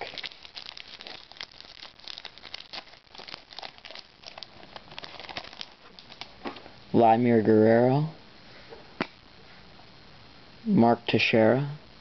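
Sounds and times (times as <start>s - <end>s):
wrapper crinkling as torn open: 0.0s - 6.4s.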